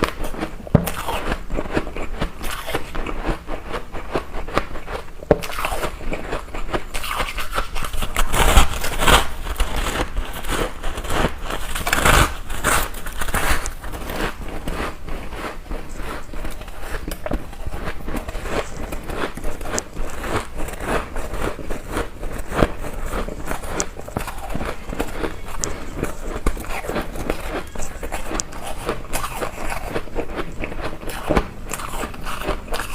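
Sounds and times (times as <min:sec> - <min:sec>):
ice being chewed: 0:00.0 - 0:32.9.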